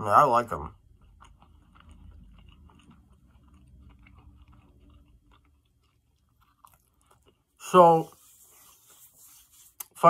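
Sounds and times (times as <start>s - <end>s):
chewing fries: 0.0s - 7.8s.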